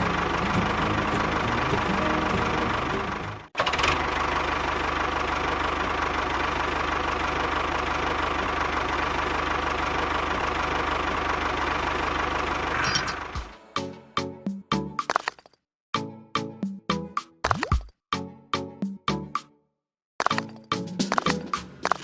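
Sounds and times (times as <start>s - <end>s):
small engine idling with knock: 20.2s - 22.0s.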